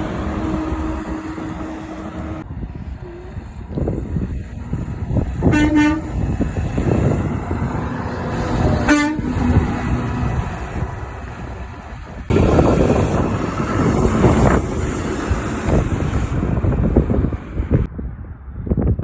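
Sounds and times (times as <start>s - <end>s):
truck engine and tyres passing: 0.0s - 18.6s
truck air horn blasts: 5.4s - 6.4s, 8.7s - 9.7s.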